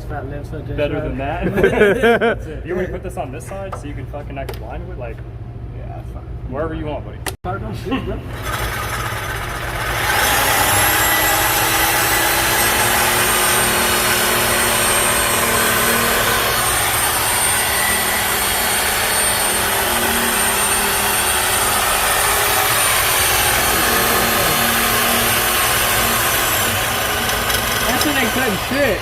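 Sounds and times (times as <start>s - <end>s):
power tool cutting steel: 8.3s - 29.0s.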